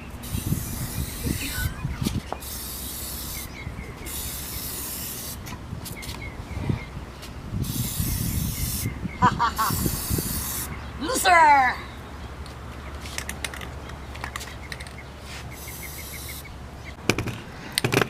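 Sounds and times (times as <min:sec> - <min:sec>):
spray paint can spraying: 0:00.2 - 0:01.7, 0:02.4 - 0:03.5, 0:04.1 - 0:05.4, 0:07.6 - 0:08.9, 0:09.6 - 0:10.7, 0:15.5 - 0:16.5.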